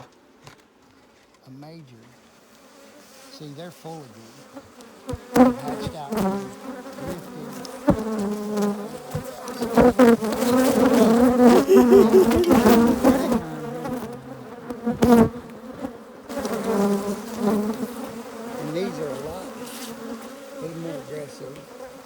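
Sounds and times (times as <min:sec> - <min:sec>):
bees buzzing loudly: 0:02.4 - 0:22.0.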